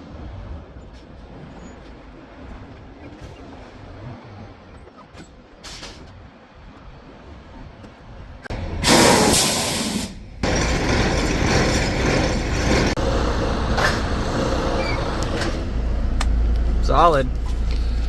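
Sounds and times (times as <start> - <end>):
diesel engine rumbling: 0.7 - 18.0
air brake hiss: 8.8 - 10.2.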